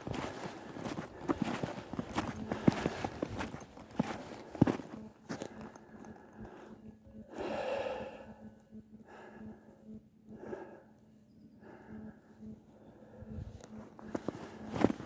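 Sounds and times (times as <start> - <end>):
person breathing heavily: 4.3 - 14.6.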